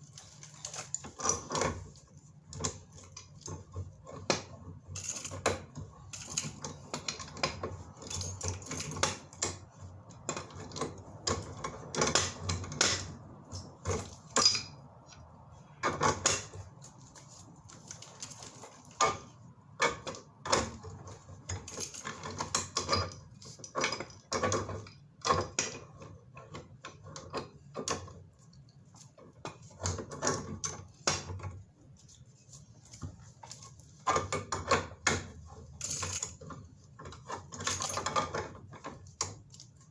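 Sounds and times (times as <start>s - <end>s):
metal tools clinking and clanking: 4.9s - 5.6s, 6.2s - 7.3s, 8.0s - 9.3s, 12.8s - 14.9s, 35.4s - 38.4s.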